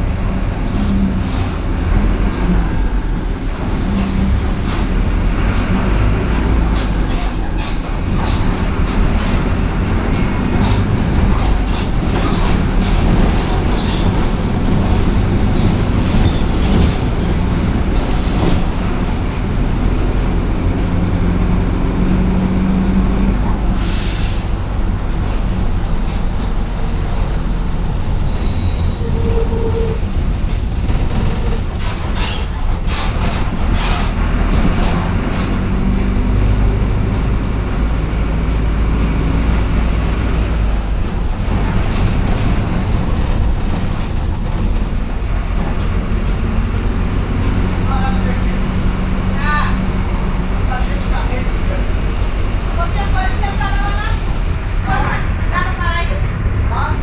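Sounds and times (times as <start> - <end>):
bus body rattling and clicking: 0.0 - 57.0
bus diesel engine rumble: 0.0 - 57.0
air hiss: 23.7 - 24.6.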